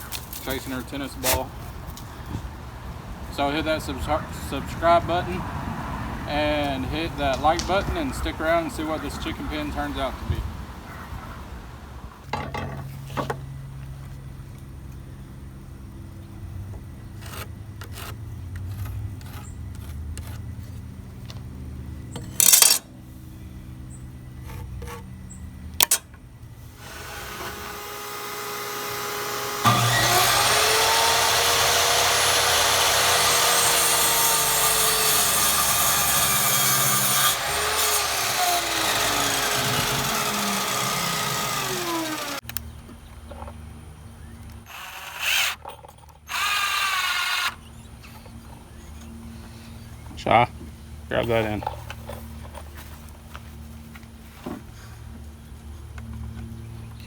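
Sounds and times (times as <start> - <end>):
power tool whining: 26.7 - 42.5, 44.7 - 47.8.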